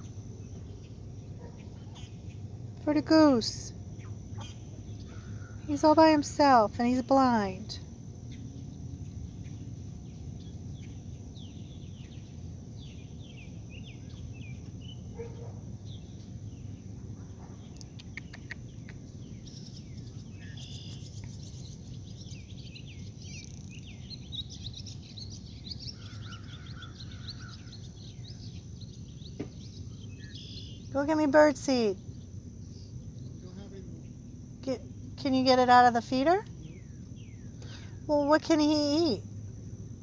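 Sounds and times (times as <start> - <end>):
small birds chirping and twittering: 0.0 - 39.9
high-pitched insect hum: 0.0 - 40.0
sharp clicks: 17.8 - 19.0.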